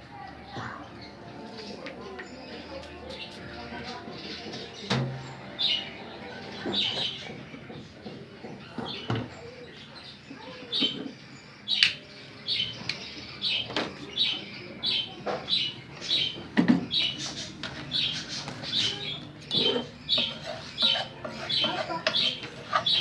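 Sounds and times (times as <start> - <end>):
budgerigars chirping: 4.2 - 7.6, 12.5 - 23.0.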